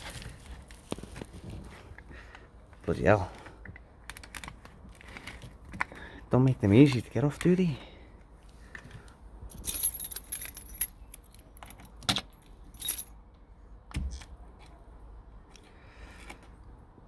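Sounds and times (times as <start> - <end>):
faint handling noise: 9.5 - 11.9, 12.7 - 13.1
metal tools clinking: 9.5 - 11.9, 12.8 - 13.1.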